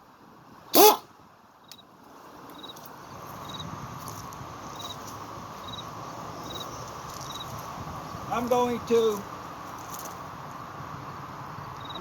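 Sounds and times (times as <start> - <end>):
steady background hiss: 0.0 - 12.0
cricket chirping: 1.6 - 1.9, 2.5 - 3.8, 4.6 - 7.6, 11.8 - 12.0.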